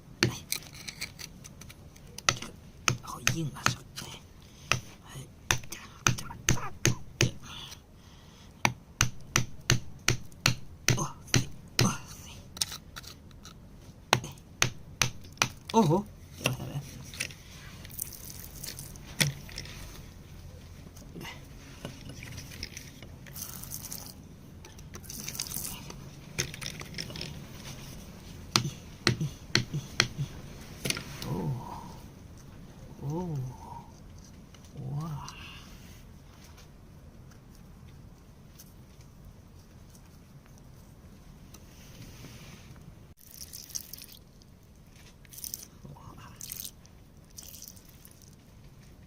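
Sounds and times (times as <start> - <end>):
rock being scraped: 0.2 - 1.7, 11.8 - 13.6
hand tool striking rock: 8.6 - 12.0.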